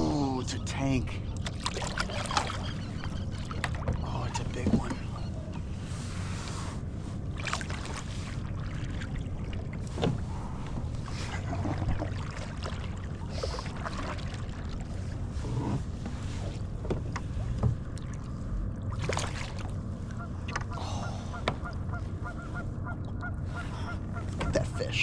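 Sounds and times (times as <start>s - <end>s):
wind and water against hull: 0.0s - 25.0s
splashes: 1.4s - 2.7s, 7.4s - 9.6s, 11.1s - 15.0s, 17.9s - 20.7s.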